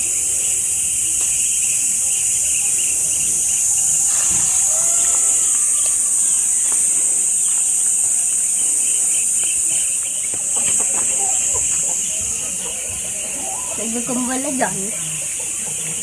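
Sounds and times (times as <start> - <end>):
high-pitched insect buzz: 0.0 - 16.0
pulsing insect chirping: 0.0 - 16.0
faint gliding call: 1.6 - 9.4.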